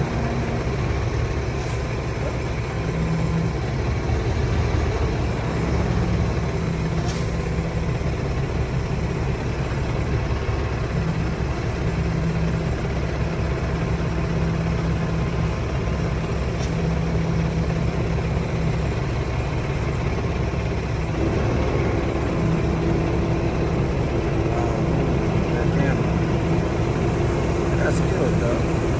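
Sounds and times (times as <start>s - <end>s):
diesel truck engine running: 0.0s - 28.9s
higher steady hum: 21.1s - 28.9s.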